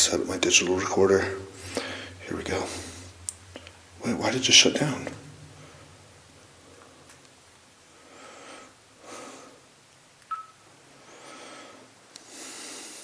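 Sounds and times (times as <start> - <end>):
man breathing noisily: 1.5 - 3.8, 7.9 - 9.8, 11.0 - 13.0
short electronic beep: 10.3 - 10.6.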